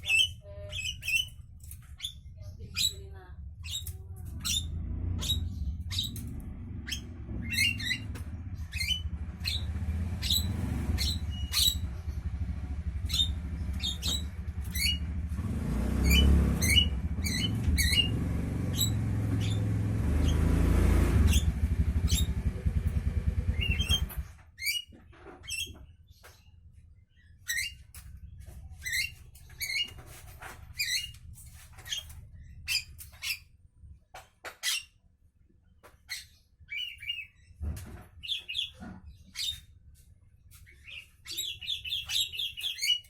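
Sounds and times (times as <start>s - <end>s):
motor engine rumble: 0.3s - 33.2s.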